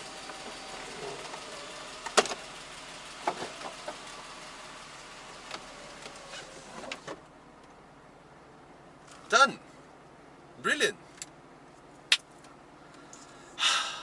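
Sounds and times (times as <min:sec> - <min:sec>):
convertible roof motor whir: 0:00.0 - 0:07.3
mechanical clicks of roof latching: 0:05.4 - 0:07.3.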